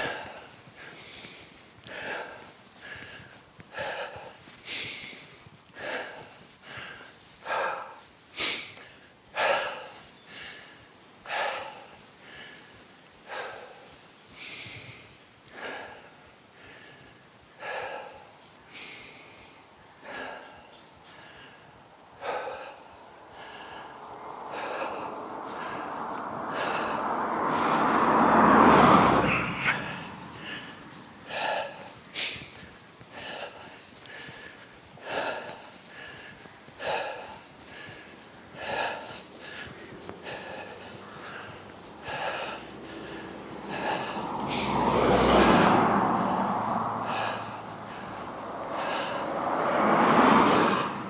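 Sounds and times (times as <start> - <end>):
cyclist breathing hard: 0.0 - 51.0
rush of noise: 21.8 - 51.0.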